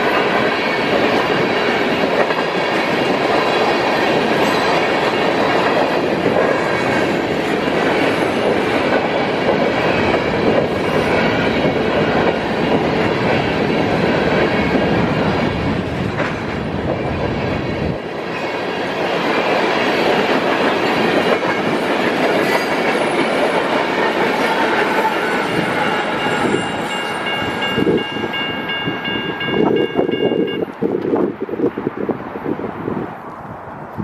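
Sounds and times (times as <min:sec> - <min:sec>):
train wheels clattering over rails: 0:00.0 - 0:31.2
crossing bell ringing: 0:04.3 - 0:05.8, 0:21.3 - 0:30.8.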